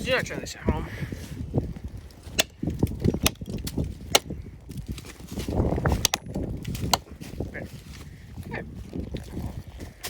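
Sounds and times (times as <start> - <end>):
blade chopping wood: 2.2 - 7.1.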